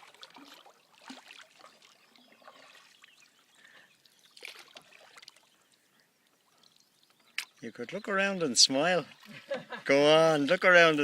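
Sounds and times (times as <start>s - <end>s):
water splash: 0.0s - 3.2s, 4.4s - 5.5s
water trickling and lapping: 0.0s - 11.0s.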